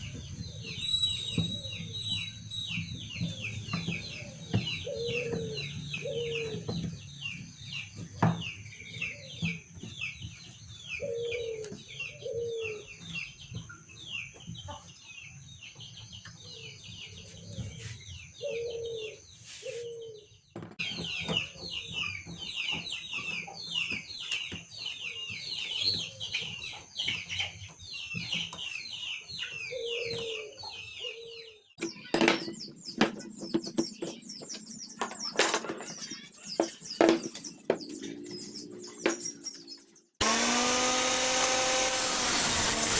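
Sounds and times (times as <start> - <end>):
small birds twittering: 0.0 - 42.9
chicken clucking: 10.9 - 18.7.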